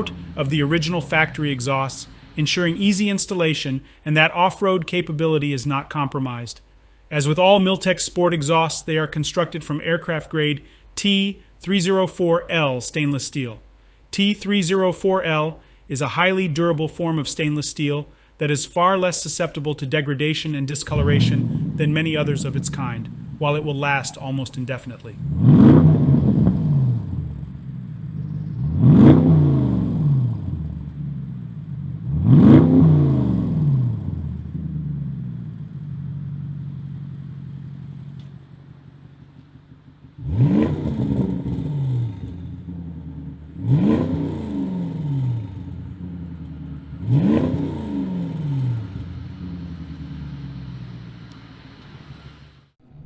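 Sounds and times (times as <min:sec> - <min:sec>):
car engine revving: 0:00.0 - 0:03.4, 0:20.8 - 0:53.0.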